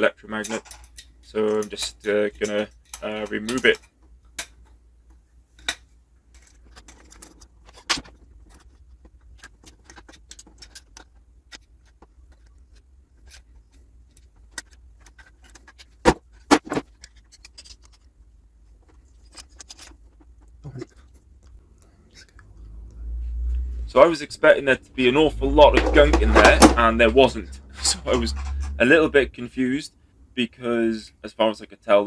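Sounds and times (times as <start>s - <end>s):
metallic clicks of tools and parts: 0.3s - 4.8s.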